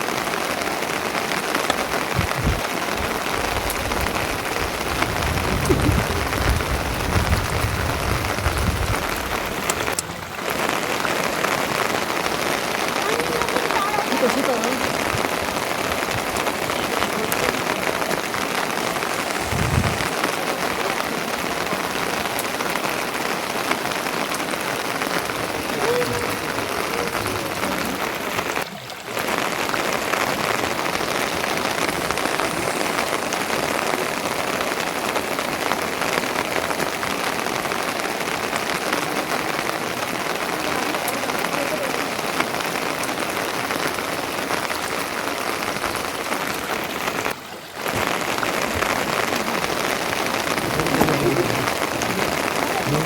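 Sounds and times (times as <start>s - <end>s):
loud rain falling: 0.0s - 53.0s.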